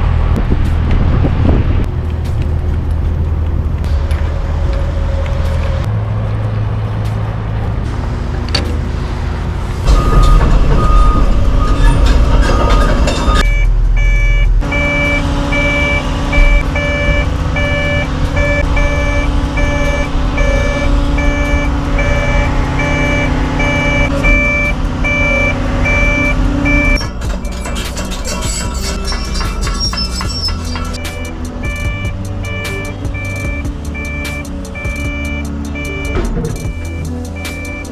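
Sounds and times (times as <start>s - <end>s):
excavator diesel engine running: 0.0s - 37.9s
warning alarm beeping: 9.9s - 37.9s.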